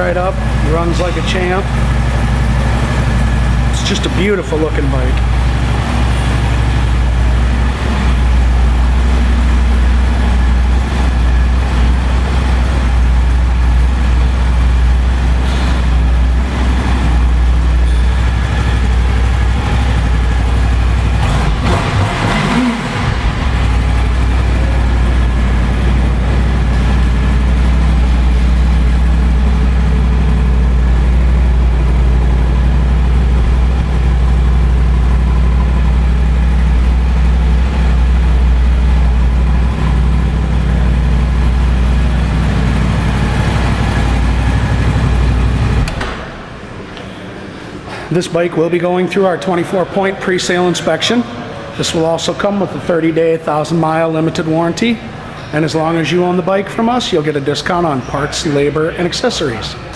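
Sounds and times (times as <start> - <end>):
motorcycle engine idling: 0.0 - 45.9
motorcycle engine revving: 0.0 - 46.0.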